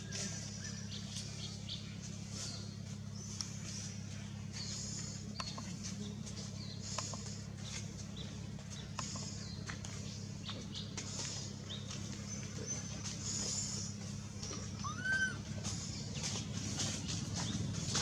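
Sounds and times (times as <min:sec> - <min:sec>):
steady low hum: 0:00.0 - 0:18.0
animal chirps and squeaks: 0:13.2 - 0:16.0.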